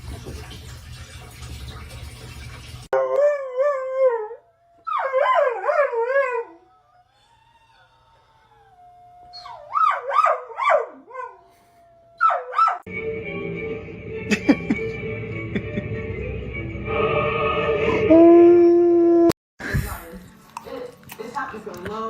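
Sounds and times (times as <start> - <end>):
dog howling: 3.0 - 12.9.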